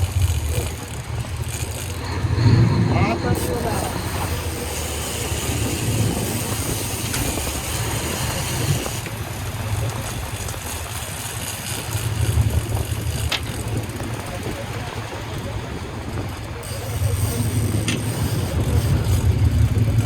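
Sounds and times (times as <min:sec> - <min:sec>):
boat engines rumbling: 0:00.0 - 0:20.0
wind and water hiss: 0:00.0 - 0:20.0.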